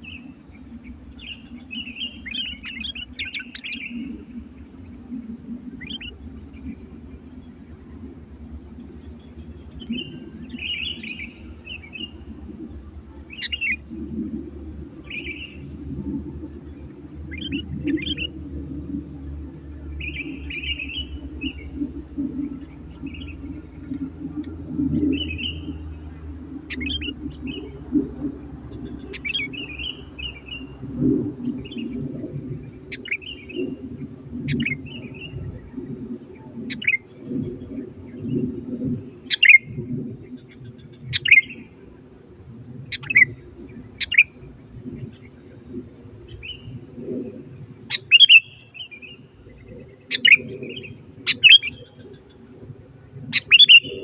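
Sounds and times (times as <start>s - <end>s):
bird chirping: 0.0s - 5.0s, 5.7s - 7.8s, 8.8s - 14.3s, 15.0s - 15.9s, 16.6s - 19.0s, 19.7s - 32.1s, 40.5s - 41.7s, 42.9s - 45.3s, 47.8s - 52.4s, 53.3s - 54.0s
low background rumble: 0.0s - 54.0s.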